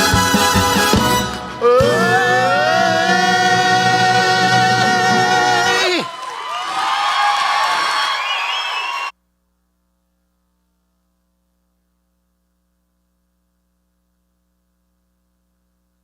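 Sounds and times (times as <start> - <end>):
music: 0.0 - 6.0
audience cheering and whooping: 1.6 - 9.1
faint electrical hum: 9.1 - 16.0.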